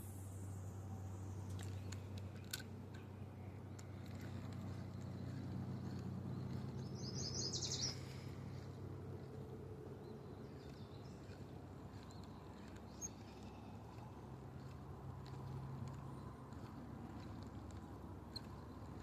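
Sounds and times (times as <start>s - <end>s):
steady low hum: 0.0s - 19.0s
songbird trilling: 5.2s - 8.2s.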